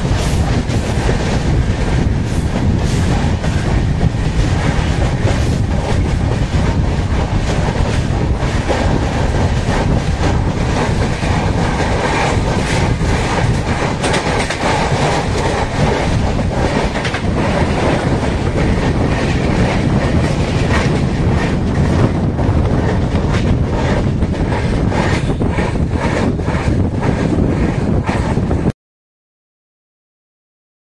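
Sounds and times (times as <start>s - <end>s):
passing goods train: 0.0s - 28.7s
train rumble: 0.0s - 28.7s
train wheels clickety-clack: 0.0s - 28.7s.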